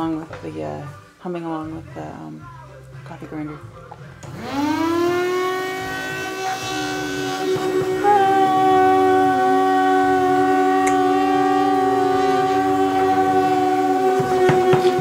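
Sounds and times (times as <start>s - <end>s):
coffee grinder motor whine: 4.2s - 15.0s
pet humming a wavering tone: 4.4s - 15.0s.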